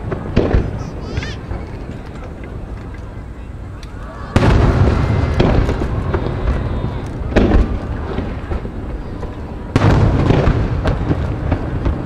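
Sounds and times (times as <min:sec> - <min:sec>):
firework shells booming: 0:00.0 - 0:03.1, 0:03.8 - 0:12.0
rolling rumble: 0:00.0 - 0:12.0.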